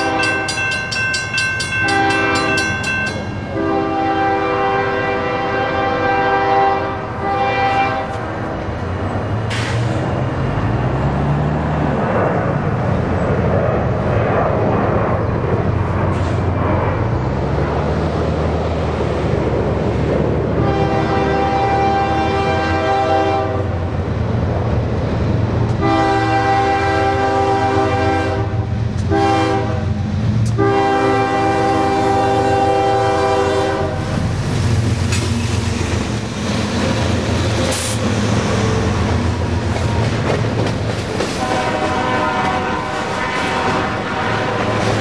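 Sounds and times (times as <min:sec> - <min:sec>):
train air horn blasts: 0:00.0 - 0:00.7, 0:01.8 - 0:08.4, 0:20.6 - 0:23.8, 0:25.8 - 0:34.2, 0:41.4 - 0:45.0
locomotive rumble: 0:00.0 - 0:45.0
train wheels on rails: 0:00.0 - 0:45.0.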